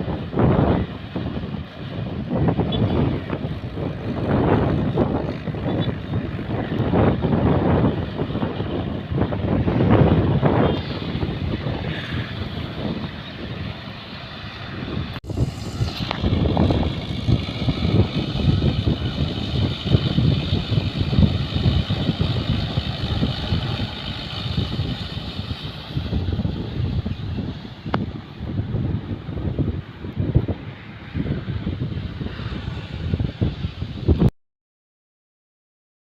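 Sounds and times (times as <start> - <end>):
tractor engine running: 0.0 - 29.1.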